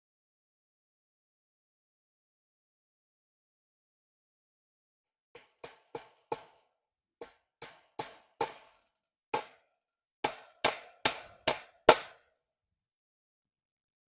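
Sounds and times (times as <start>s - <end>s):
hammer strikes: 5.4s - 12.2s.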